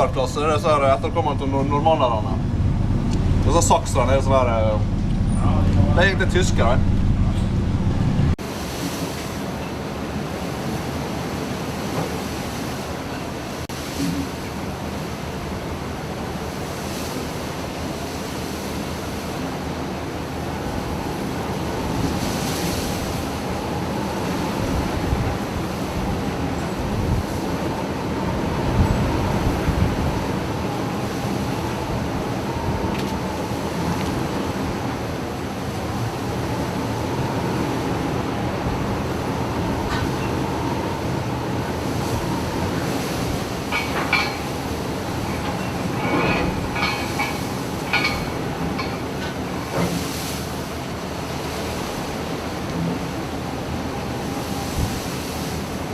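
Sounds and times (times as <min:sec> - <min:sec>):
wind buffeting microphone: 0:00.0 - 0:08.6, 0:20.3 - 0:55.9
rushing sea waves: 0:00.0 - 0:55.9
ship rumbling in a storm: 0:00.0 - 0:55.9.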